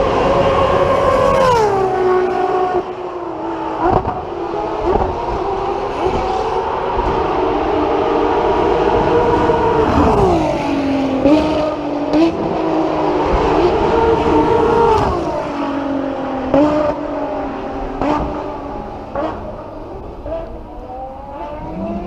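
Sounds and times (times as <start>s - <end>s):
sports car engine at high revs: 0.6s - 22.0s.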